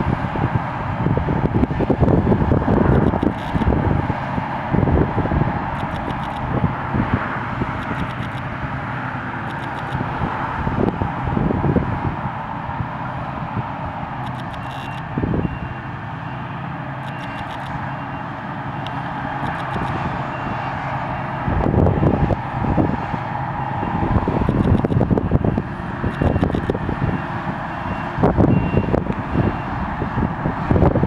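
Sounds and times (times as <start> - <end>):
heavy machinery engine running: 0.0 - 31.0
wind buffeting microphone: 0.0 - 31.0
faint high repeating beeps: 14.2 - 16.4, 17.0 - 18.3, 24.5 - 25.0, 26.1 - 26.7.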